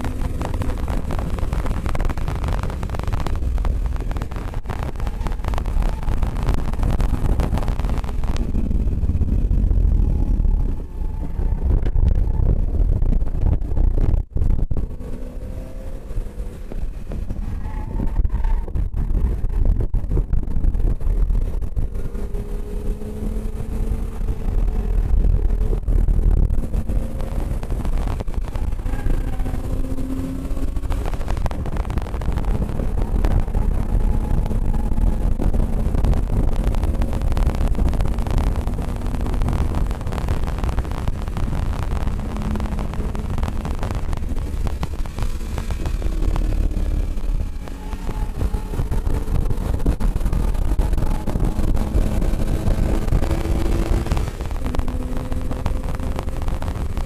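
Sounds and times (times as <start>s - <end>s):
car engine running hard: 0.0s - 57.0s
wind noise on microphone: 0.0s - 57.0s.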